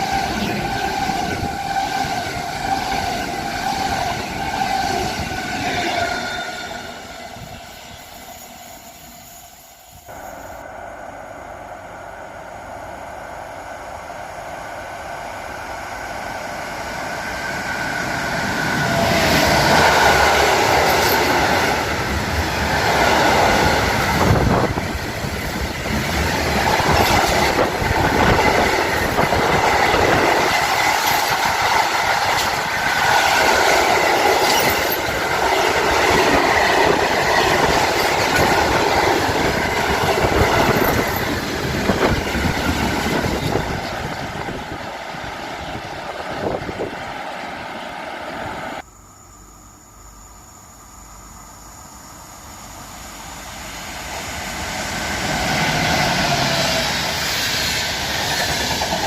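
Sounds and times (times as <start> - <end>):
train wheels clattering over rail joints: 23.9 - 44.2
wheels squealing: 28.2 - 39.4.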